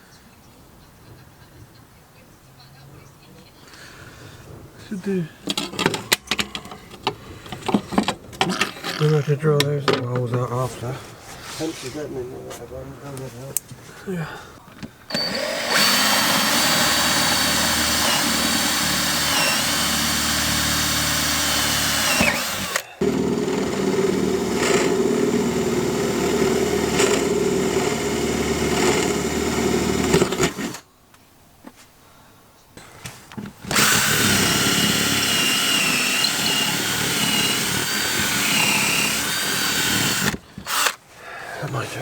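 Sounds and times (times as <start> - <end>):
electric jigsaw cutting: 15.1 - 30.8, 33.6 - 41.0.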